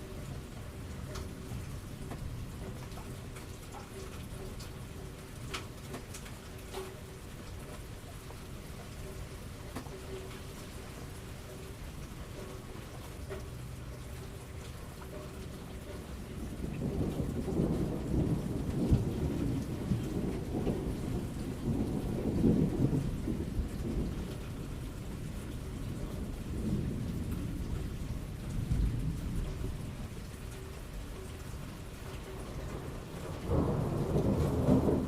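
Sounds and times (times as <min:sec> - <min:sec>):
steady falling rain: 0:00.0 - 0:35.0
thunder rumbling: 0:16.0 - 0:35.0.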